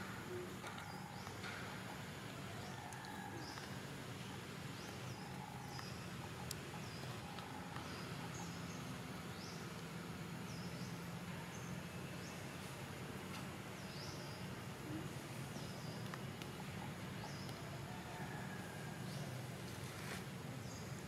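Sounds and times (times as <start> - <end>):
birds calling: 0.0 - 13.0, 13.6 - 19.6.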